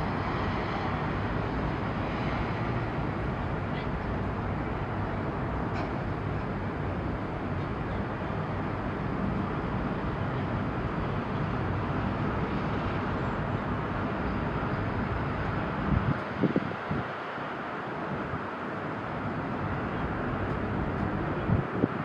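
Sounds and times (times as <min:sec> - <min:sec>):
harbour noise: 0:00.0 - 0:22.0
wind buffeting microphone: 0:15.1 - 0:18.6, 0:19.3 - 0:22.0.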